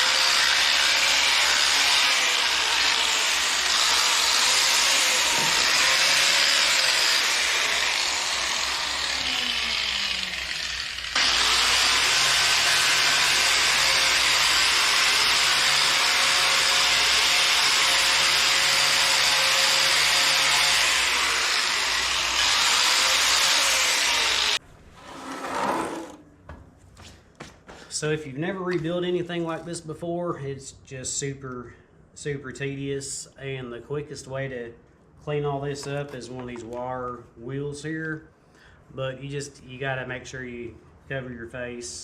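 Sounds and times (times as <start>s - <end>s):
wire wheel grinding metal: 0.0s - 26.2s.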